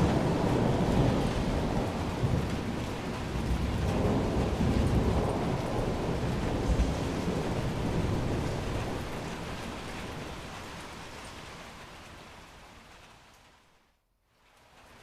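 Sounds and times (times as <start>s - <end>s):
low rumble of thunder: 0.0s - 10.8s
steady rain: 0.0s - 15.0s.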